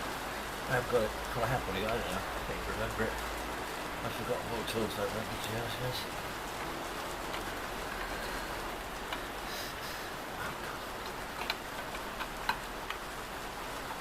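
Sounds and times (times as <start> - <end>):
steady background hiss: 0.0 - 14.0
light metallic clicks and taps: 11.0 - 13.0.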